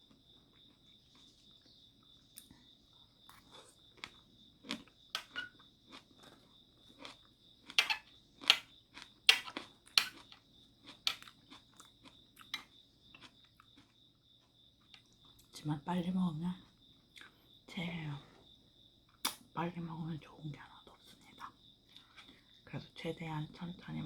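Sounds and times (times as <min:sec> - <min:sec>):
chewing and crunching: 0:00.0 - 0:15.6, 0:21.9 - 0:22.5.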